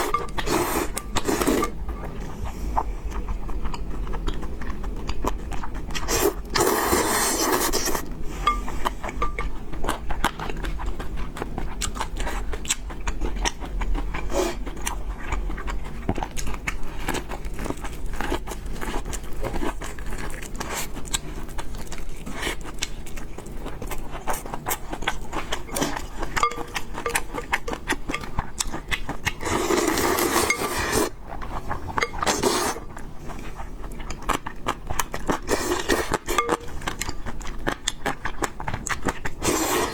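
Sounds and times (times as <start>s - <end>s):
utensils clinking against a bowl: 0.0s - 2.2s, 7.4s - 10.4s, 17.2s - 32.8s, 35.2s - 38.2s
chewing clicks: 3.1s - 6.0s.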